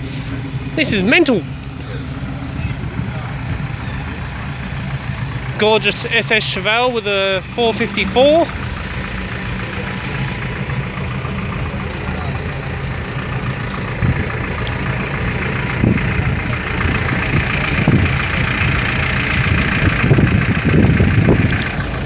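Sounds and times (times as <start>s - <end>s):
background voices: 0.0s - 22.0s
car engine idling: 0.0s - 22.0s.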